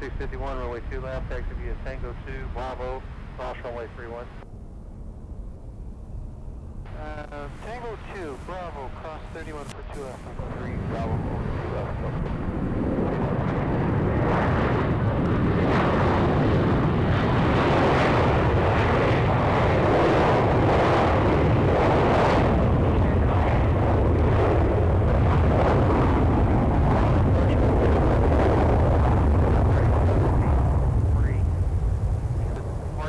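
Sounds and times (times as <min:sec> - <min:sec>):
jet engines roaring: 0:06.8 - 0:33.0.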